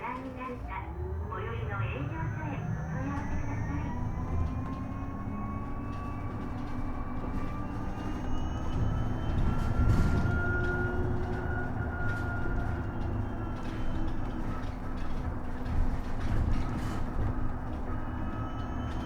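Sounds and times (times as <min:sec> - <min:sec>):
road and tyre rumble: 0:00.3 - 0:19.0
electric motor whining: 0:00.6 - 0:07.6.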